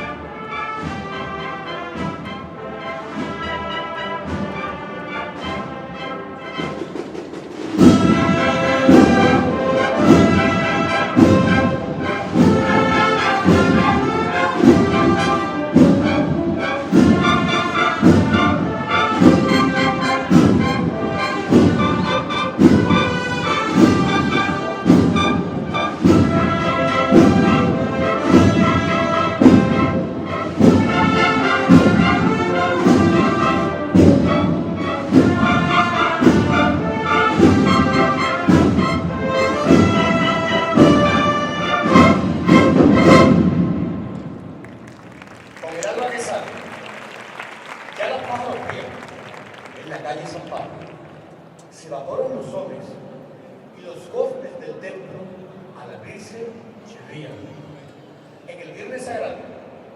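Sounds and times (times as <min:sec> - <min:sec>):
brass band playing a march: 0:00.0 - 0:45.7
heavy drum beat: 0:06.8 - 0:43.8.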